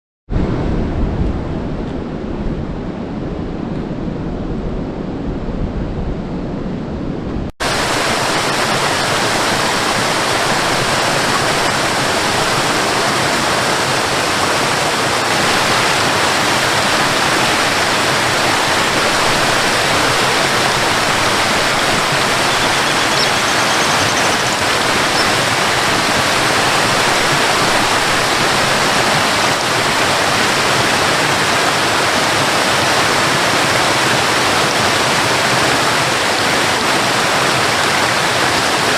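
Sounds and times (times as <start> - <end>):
deep rumbling noise: 0.3 - 8.6
waterfall rushing: 7.6 - 38.9.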